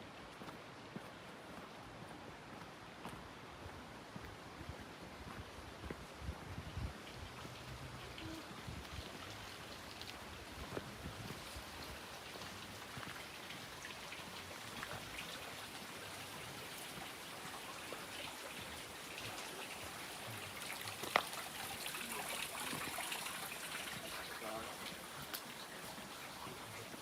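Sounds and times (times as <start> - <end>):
water trickling and dripping: 6.5 - 27.0.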